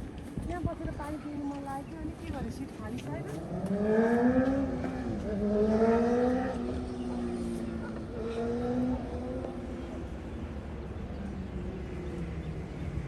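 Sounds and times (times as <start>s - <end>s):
vehicle engine accelerating: 3.3s - 13.0s.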